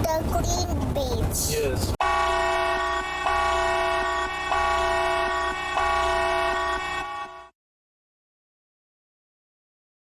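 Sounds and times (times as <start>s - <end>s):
horn long blast: 2.0s - 7.6s.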